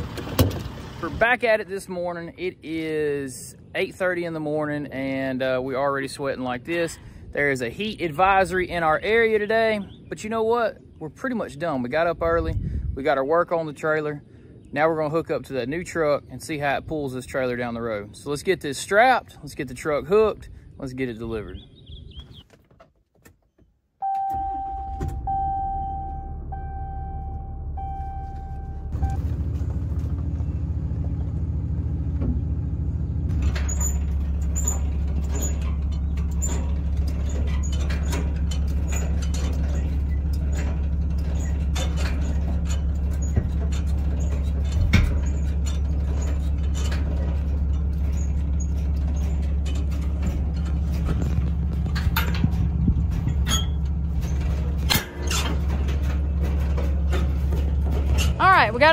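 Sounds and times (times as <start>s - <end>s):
diesel engine idling with clatter: 0.0s - 22.4s, 25.0s - 58.9s
electronic chime beeping: 24.0s - 29.2s.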